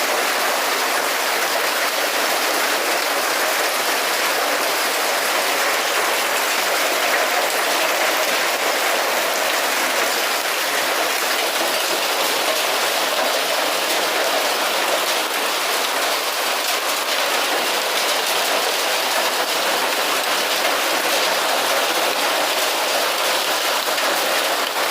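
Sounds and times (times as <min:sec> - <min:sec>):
hailstones ticking: 0:00.2 - 0:24.9.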